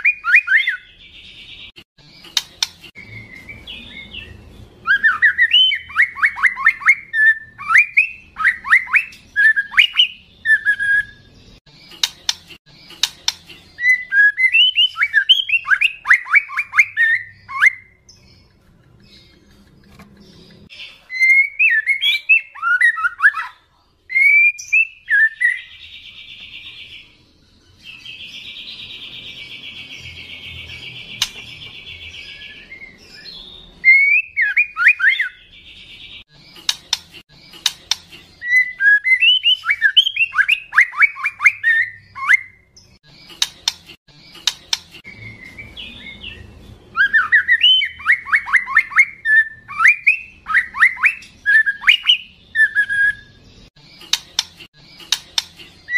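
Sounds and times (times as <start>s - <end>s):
bird singing whistled phrases: 0.0s - 0.9s, 3.0s - 11.3s, 13.8s - 18.0s, 21.1s - 25.7s, 32.2s - 35.4s, 38.4s - 42.7s, 47.0s - 53.4s
bird clicks: 2.3s - 2.9s, 12.0s - 13.5s, 31.2s - 31.5s, 36.6s - 38.1s, 43.3s - 45.0s, 54.0s - 55.7s.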